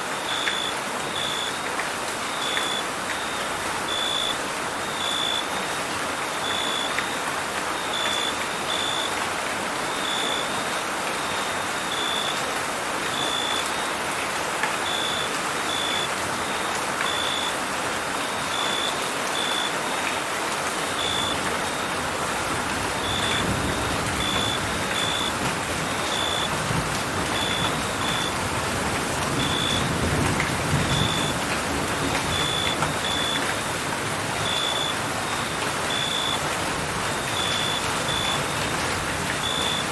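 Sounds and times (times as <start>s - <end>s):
steady rain: 0.0s - 39.9s
crickets chirping: 20.9s - 22.0s, 23.0s - 26.6s, 27.3s - 28.4s, 30.9s - 31.3s, 32.3s - 33.6s, 34.3s - 36.4s.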